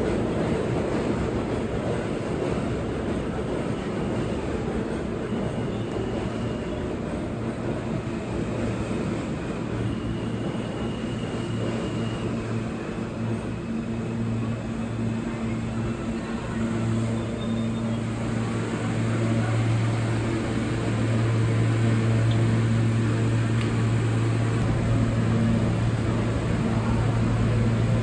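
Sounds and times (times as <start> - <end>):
subway train rumble: 0.0 - 28.0.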